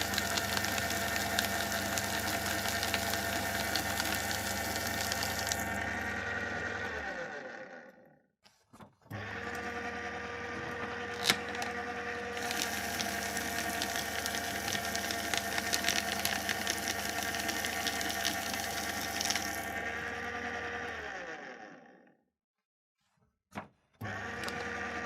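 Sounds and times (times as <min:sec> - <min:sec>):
paper crackling as it is cut: 0:00.0 - 0:05.6, 0:11.1 - 0:19.6
paper shredder motor humming: 0:00.0 - 0:08.2, 0:09.0 - 0:22.2, 0:24.0 - 0:25.0
shredder click: 0:10.5 - 0:11.8, 0:24.0 - 0:25.0.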